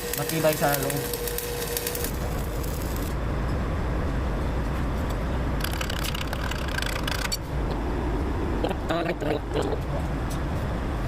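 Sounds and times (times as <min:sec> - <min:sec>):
welding arc crackling: 0:00.0 - 0:03.2, 0:05.6 - 0:07.4
steady low rumble: 0:01.9 - 0:11.0.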